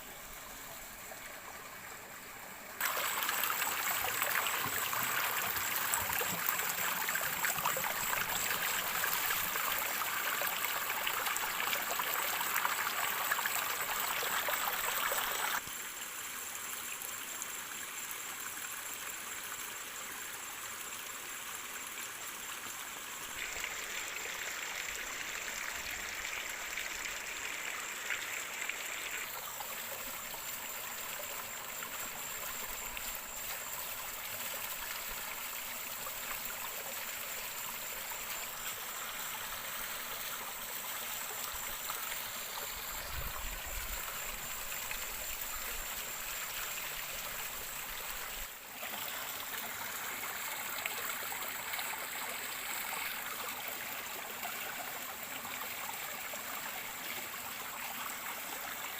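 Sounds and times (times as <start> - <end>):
running water: 0.0 - 15.6.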